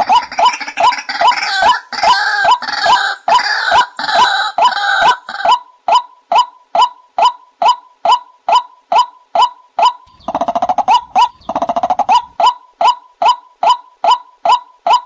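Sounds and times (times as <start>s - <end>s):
harsh bird calls: 0.0s - 5.6s, 9.4s - 15.0s
bird calling kook notes: 8.5s - 15.0s.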